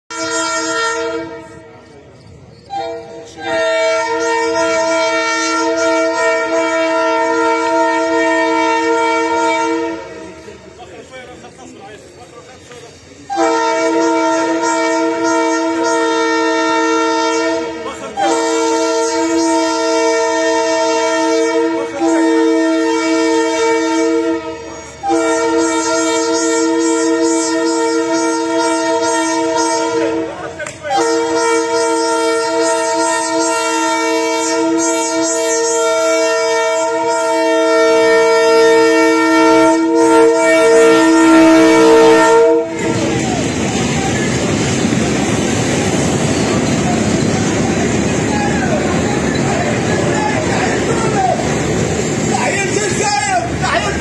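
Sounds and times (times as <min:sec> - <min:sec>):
locomotive horn blasts: 0:00.1 - 0:02.0, 0:02.6 - 0:10.7, 0:13.3 - 0:44.6.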